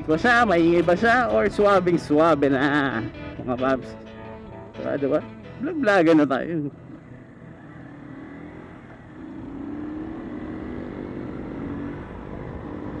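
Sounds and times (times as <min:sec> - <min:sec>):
motorcycle engine running: 0:05.7 - 0:13.0.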